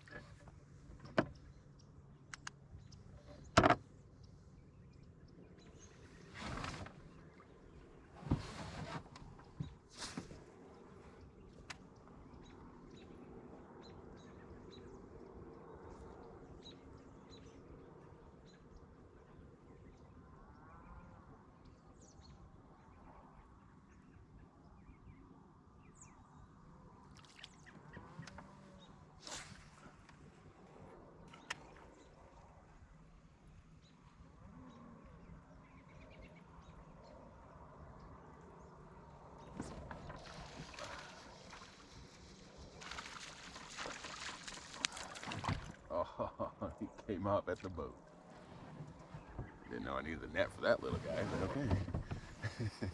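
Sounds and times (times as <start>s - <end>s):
faint outdoor ambience: 0.0s - 52.9s.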